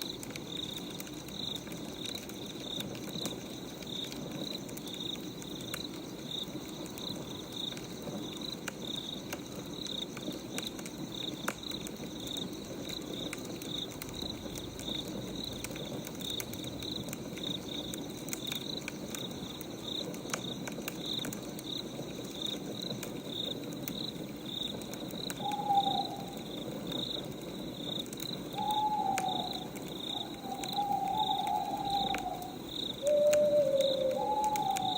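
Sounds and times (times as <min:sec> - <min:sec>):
crickets chirping: 0:00.0 - 0:34.9
wood fire crackling: 0:00.0 - 0:34.9
falling hoot-like calls: 0:25.3 - 0:26.9, 0:28.4 - 0:34.9.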